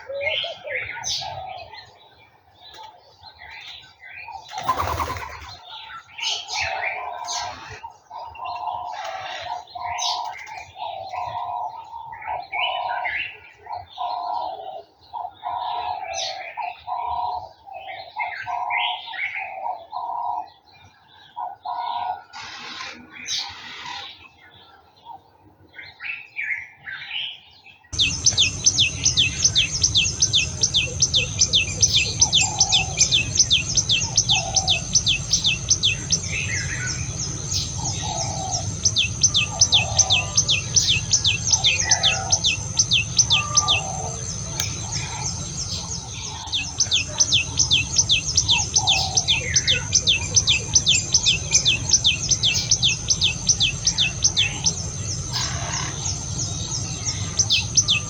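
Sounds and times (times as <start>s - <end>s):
lower bird calls: 0.0s - 2.0s, 3.8s - 17.4s, 28.0s - 58.0s
bird chirping rapidly: 4.5s - 5.7s, 28.0s - 58.0s
thin high whine: 28.0s - 58.0s.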